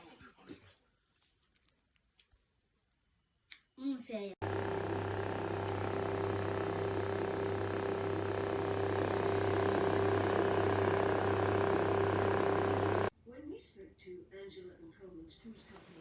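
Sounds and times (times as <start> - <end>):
electric motor hum: 4.4 - 13.1
fan heater rushing: 4.4 - 13.1.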